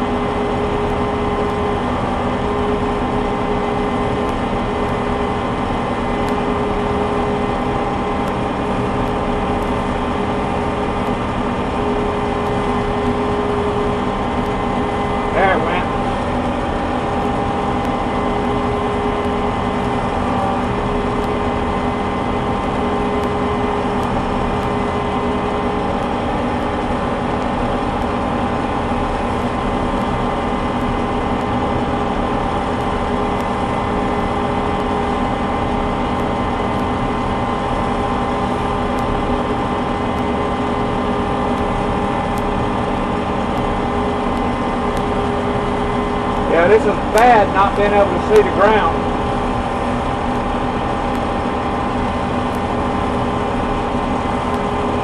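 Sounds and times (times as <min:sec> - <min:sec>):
combine harvester droning: 0:00.0 - 0:55.0
constant mechanical whine: 0:00.0 - 0:55.0.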